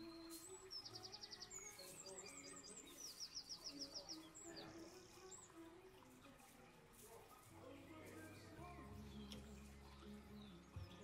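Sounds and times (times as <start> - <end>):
whistled bird phrases: 0.0 - 5.5
faint bird song trills: 0.0 - 11.0.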